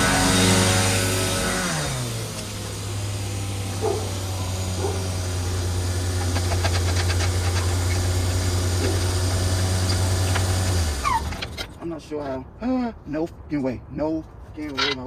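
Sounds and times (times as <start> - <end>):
machine motor humming: 0.0 - 11.0.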